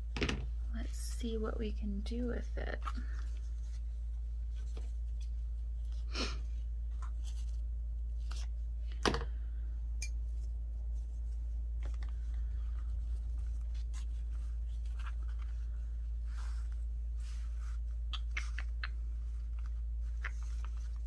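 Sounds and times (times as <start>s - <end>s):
paper rustling: 10.9s - 21.0s.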